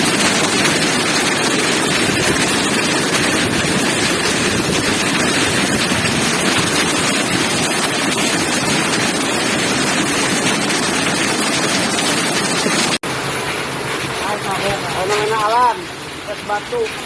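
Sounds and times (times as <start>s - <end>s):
heavy rain and hail: 0.0s - 17.0s.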